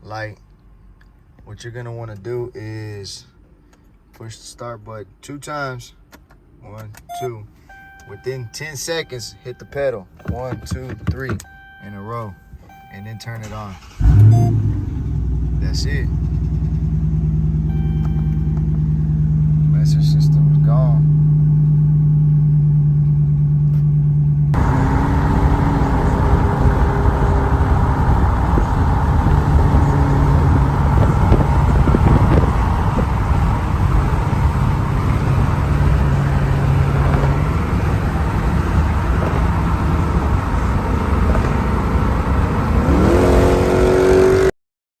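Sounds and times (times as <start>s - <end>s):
road noise: 0.0s - 44.5s
car engine humming: 7.0s - 44.5s
engine revving: 13.7s - 44.5s.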